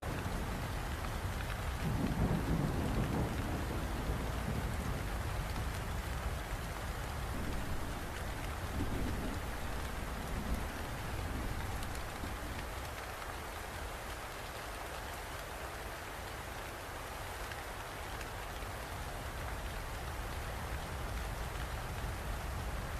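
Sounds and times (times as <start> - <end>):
steady rain falling: 0.0 - 22.9
thunder rumbling: 0.1 - 13.0.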